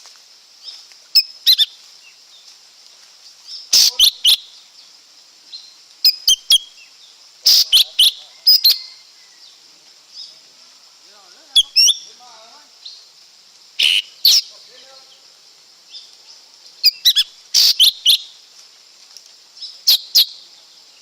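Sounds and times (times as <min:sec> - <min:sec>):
steady high hiss: 0:00.0 - 0:21.0
bird calling high notes: 0:13.8 - 0:14.5.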